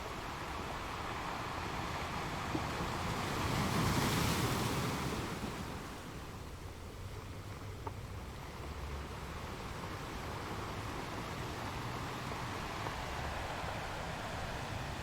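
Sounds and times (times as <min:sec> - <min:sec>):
ocean waves surging on shore: 0:00.1 - 0:06.2, 0:09.6 - 0:15.0.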